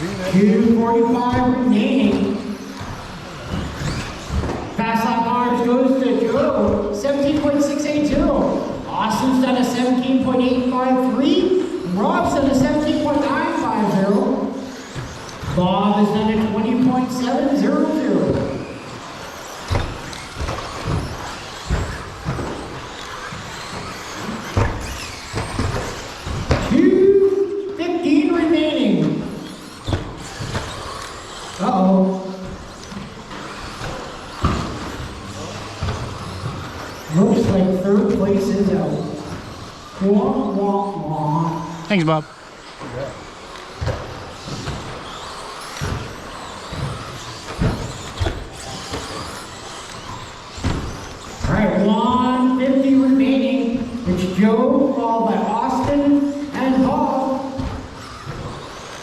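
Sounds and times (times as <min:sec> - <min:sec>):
tyre noise: 0:28.2 - 0:41.0
electric motor whine: 0:29.8 - 0:41.0.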